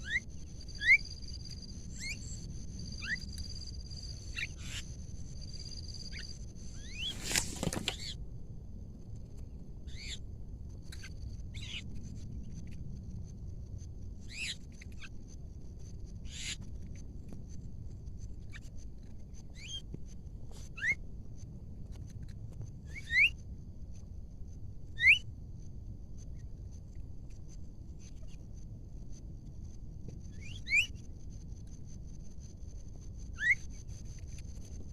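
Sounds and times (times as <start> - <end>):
high-pitched insect drone: 0.0 - 6.4.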